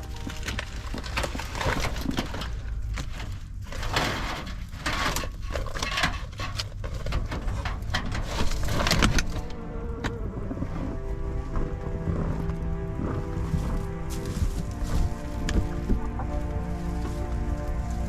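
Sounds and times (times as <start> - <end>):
low steady rumble: 0.0 - 18.0
snow crunching and scraping: 8.1 - 18.0.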